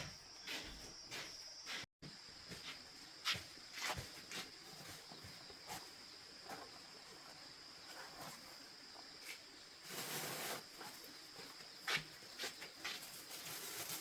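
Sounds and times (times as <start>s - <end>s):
rustle: 3.8s - 14.0s.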